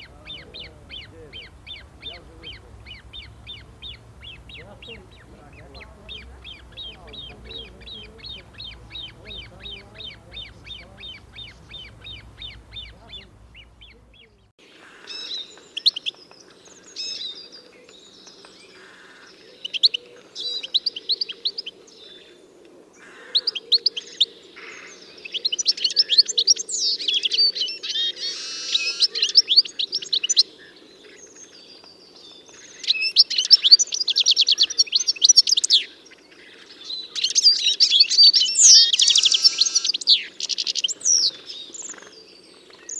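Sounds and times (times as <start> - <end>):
birds chirping and trilling: 0.0 - 42.9.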